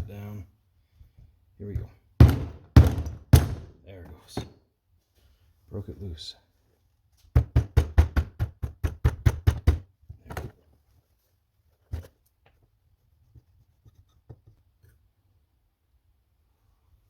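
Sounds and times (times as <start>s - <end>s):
sharp knocks on metal: 2.2s - 3.7s.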